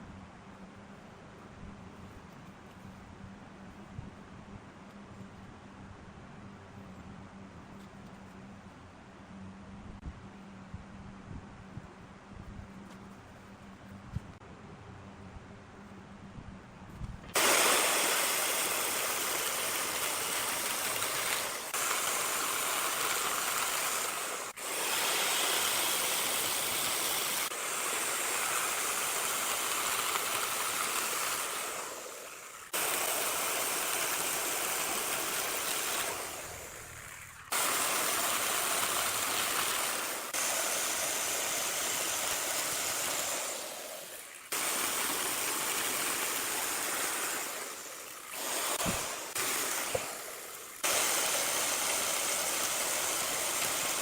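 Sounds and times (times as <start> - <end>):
woodworking machinery hissing: 17.3 - 54.0.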